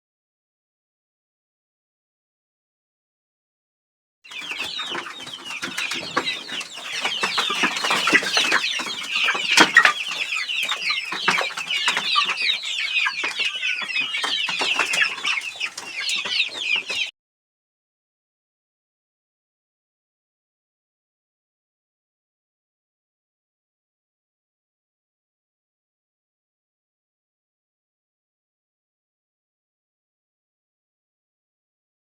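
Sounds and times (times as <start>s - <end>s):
chickens calling: 4.3s - 17.1s.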